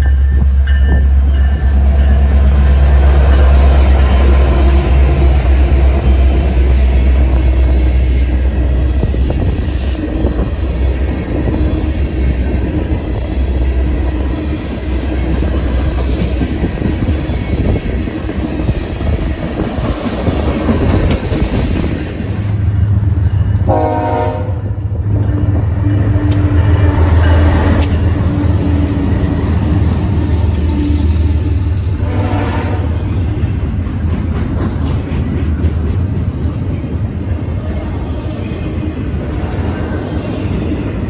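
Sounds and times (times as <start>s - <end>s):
diesel locomotive engine rumble: 0.0s - 41.0s
train wheels clicking over joints: 1.8s - 23.7s, 24.8s - 31.6s, 33.0s - 37.6s
train horn blast: 23.6s - 24.8s, 32.0s - 33.1s.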